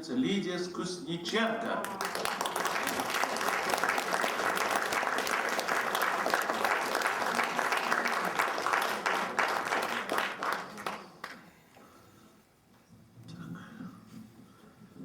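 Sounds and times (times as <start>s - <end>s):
audience applauding: 1.8s - 11.5s.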